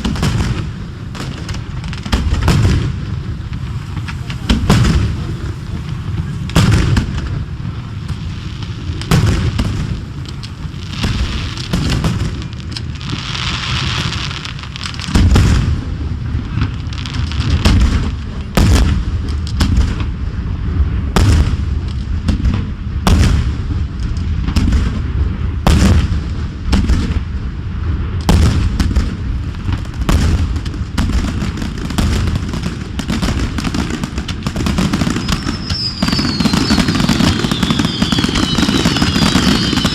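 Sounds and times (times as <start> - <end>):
continuous low rumble: 0.0 - 39.2
fireworks bursting with booms: 0.0 - 39.9.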